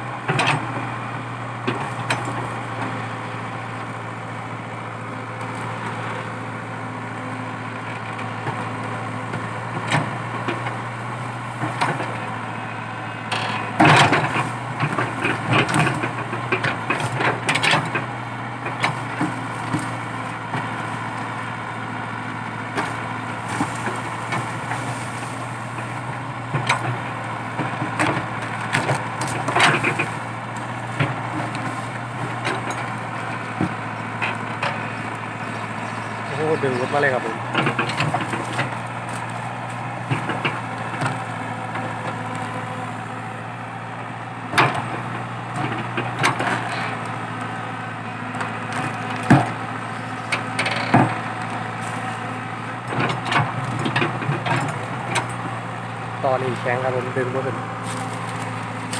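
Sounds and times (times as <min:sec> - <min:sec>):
excavator diesel engine under load: 0:00.0 - 0:58.9
wood cracking and splintering: 0:13.6 - 0:58.9.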